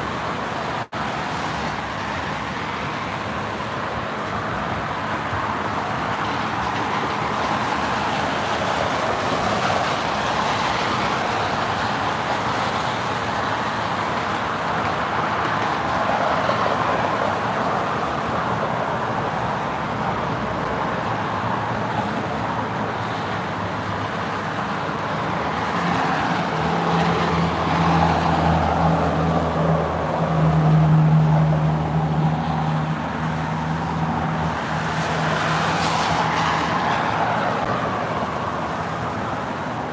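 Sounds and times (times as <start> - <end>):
road traffic: 0.0 - 39.9.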